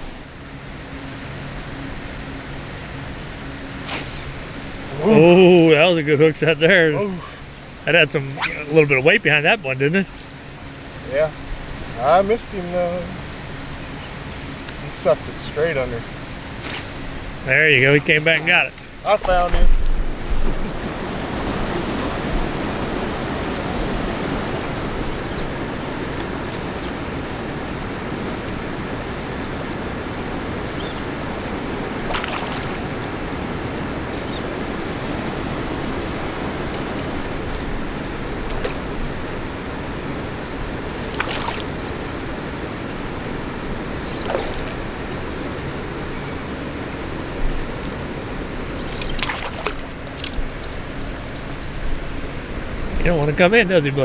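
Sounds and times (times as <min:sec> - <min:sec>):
flowing water rushing: 0:16.1 - 0:53.3.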